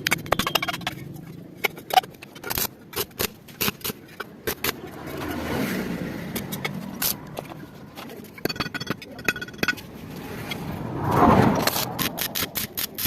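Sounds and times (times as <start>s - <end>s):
sharp metallic clicks and taps: 0.0s - 5.3s
rush of noise: 9.8s - 12.7s.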